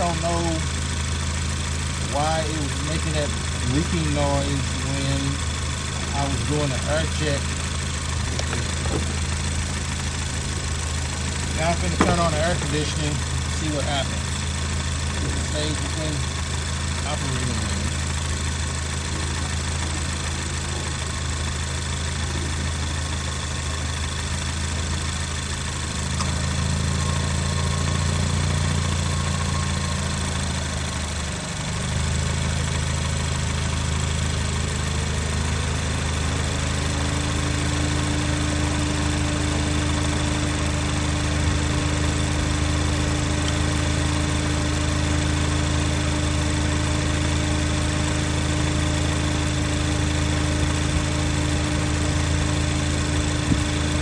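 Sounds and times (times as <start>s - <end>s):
air conditioning running: 0.0s - 22.8s
car engine idling: 0.0s - 54.0s.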